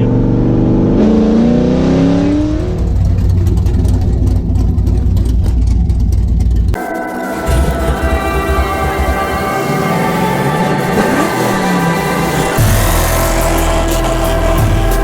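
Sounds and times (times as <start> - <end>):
car engine revving: 0.0 - 15.0
music: 6.8 - 15.0.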